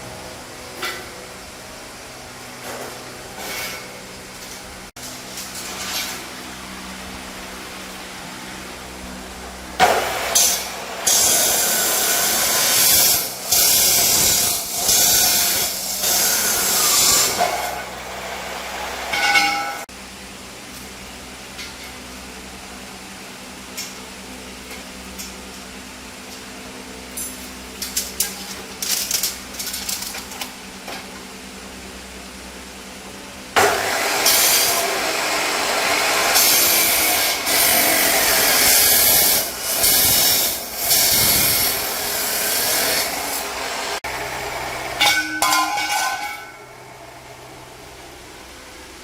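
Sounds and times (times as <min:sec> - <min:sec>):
power tool running: 0:05.0 - 0:19.2, 0:33.6 - 0:45.0.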